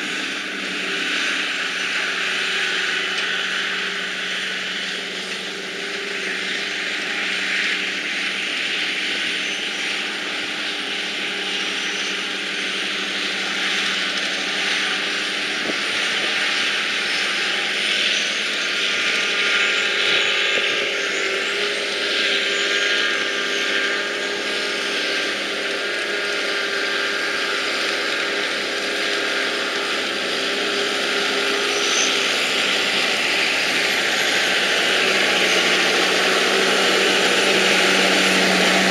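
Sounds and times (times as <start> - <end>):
engine drone: 0.0 - 38.9
wide rushing noise: 28.5 - 38.9.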